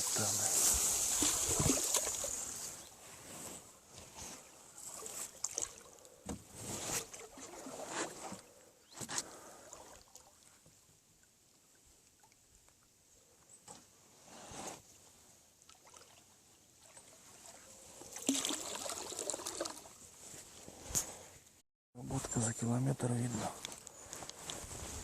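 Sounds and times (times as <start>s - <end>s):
oars pulling through water: 0.0s - 10.8s, 15.7s - 20.8s.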